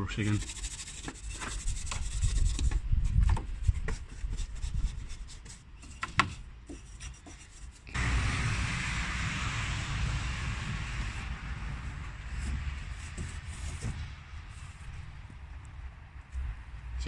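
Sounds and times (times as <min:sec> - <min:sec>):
brush scrubbing plastic: 0:00.1 - 0:02.8, 0:03.5 - 0:07.9, 0:11.7 - 0:14.9.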